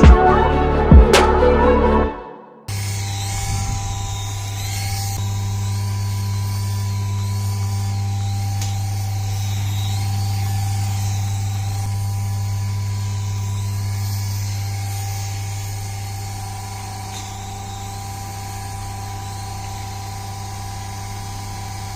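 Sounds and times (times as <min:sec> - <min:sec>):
toy electric motor whining: 0:02.7 - 0:21.9.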